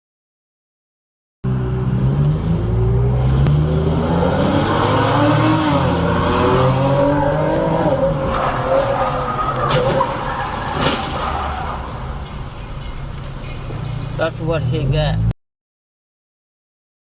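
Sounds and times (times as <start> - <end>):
road noise: 1.4 - 15.4.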